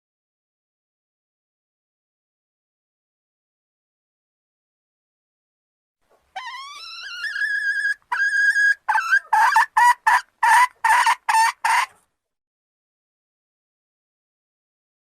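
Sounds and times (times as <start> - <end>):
junglefowl calling: 6.4 - 12.0.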